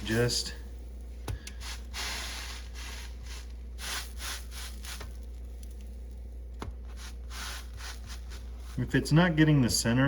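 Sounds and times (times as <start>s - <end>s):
buns scraping on griddle: 1.6s - 5.4s, 6.8s - 8.9s.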